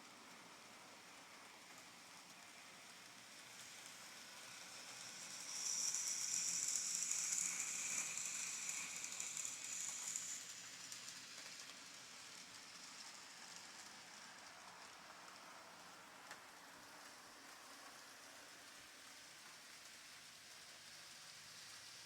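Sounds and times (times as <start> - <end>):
model train wheels rattling on track: 1.3 - 14.1.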